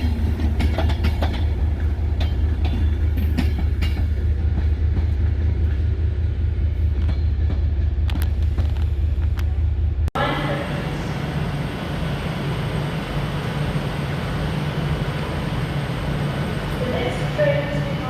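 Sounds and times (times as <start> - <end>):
train rumbling past: 0.0 - 18.0
wheels clicking over rail joints: 0.2 - 5.1.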